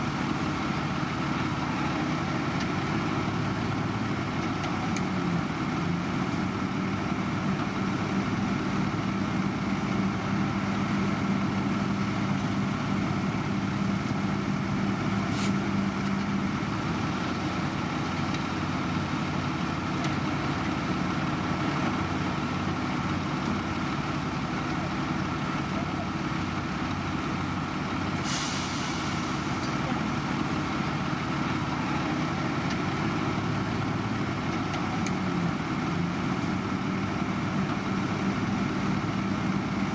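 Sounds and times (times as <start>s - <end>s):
heavy diesel machinery running: 0.0s - 39.9s
short hiss: 15.3s - 15.6s, 28.2s - 29.6s.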